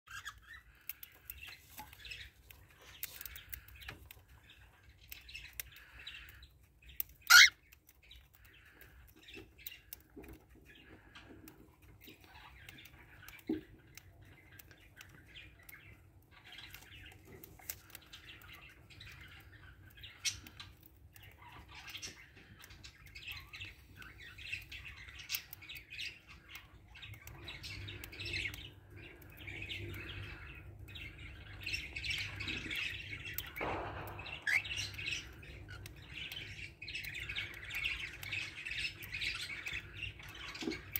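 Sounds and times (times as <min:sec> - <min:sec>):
birds chirping: 0:00.1 - 0:40.9
loud bird squawk: 0:07.2 - 0:07.6.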